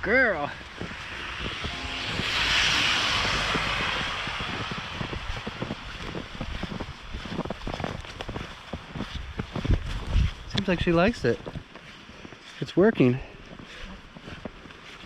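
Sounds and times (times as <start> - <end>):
outdoor rushing noise: 0.0 - 8.6
wind buffeting microphone: 0.2 - 11.8.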